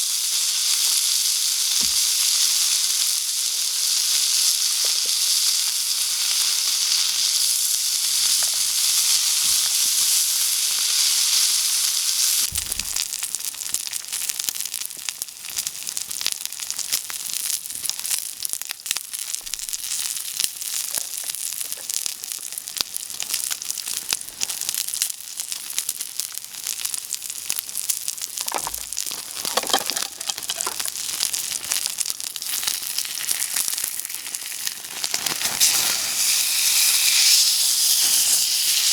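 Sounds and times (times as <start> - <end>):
food sizzling and crackling: 0.0 - 38.9.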